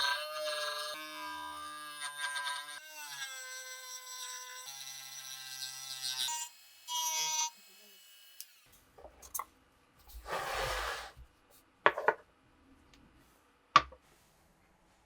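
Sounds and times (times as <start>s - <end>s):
soft rub: 13.2s - 15.0s.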